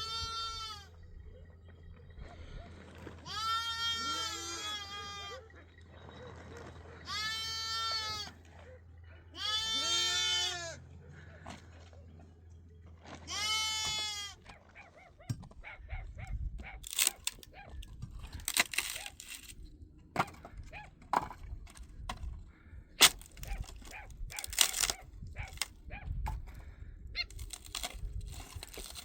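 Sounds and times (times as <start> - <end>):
livestock bleating: 0.0 - 1.0, 3.2 - 5.5, 7.0 - 8.4, 9.4 - 10.8, 13.3 - 14.4
sharp cracks and knocks: 16.8 - 17.5, 18.2 - 19.6, 23.0 - 25.7.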